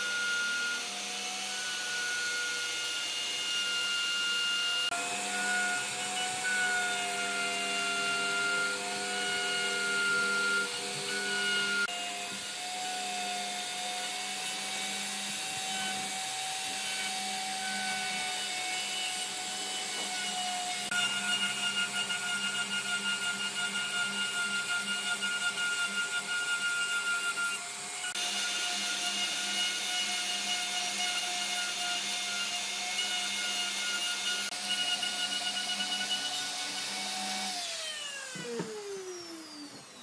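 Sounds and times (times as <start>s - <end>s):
power tool motor whining: 0.0s - 40.0s.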